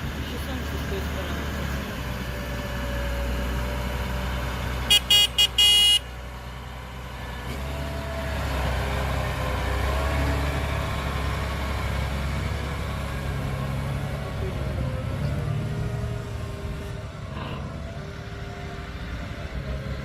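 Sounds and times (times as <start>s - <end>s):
heavy engine running: 0.0s - 20.0s
vehicle horn toots: 4.9s - 6.1s.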